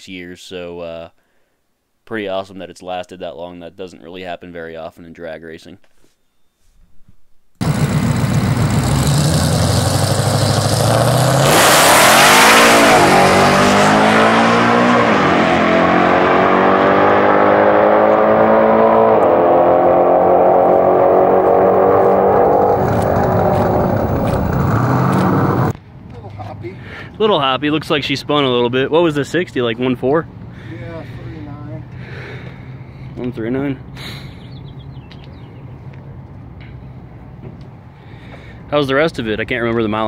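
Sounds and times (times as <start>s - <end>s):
drag race car engine accelerating: 7.6s - 25.7s.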